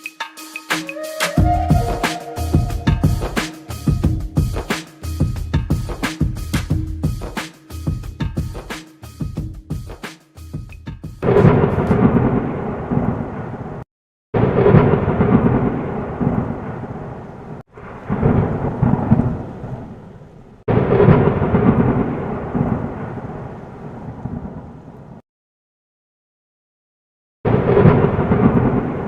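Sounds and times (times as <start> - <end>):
deep thunder-like rumbling: 1.4 - 5.9, 11.2 - 13.8, 14.4 - 24.8, 27.5 - 29.0.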